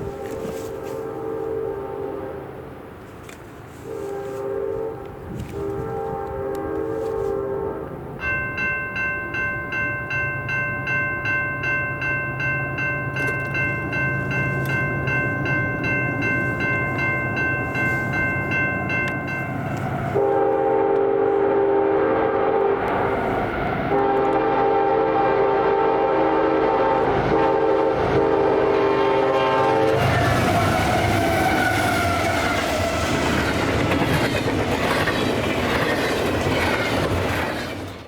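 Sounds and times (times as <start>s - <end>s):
locomotive horn blasts: 0.0s - 2.7s, 3.7s - 8.1s, 13.2s - 31.8s
diesel locomotive rumble: 0.0s - 38.0s
bell ringing: 8.2s - 20.2s.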